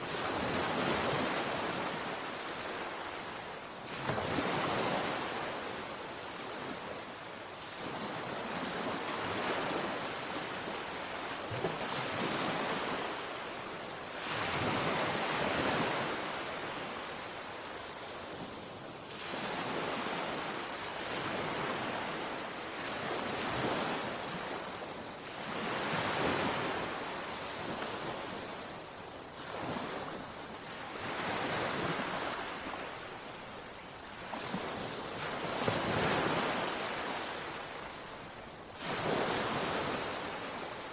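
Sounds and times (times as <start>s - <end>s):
sea waves breaking on shore: 0.0s - 40.9s.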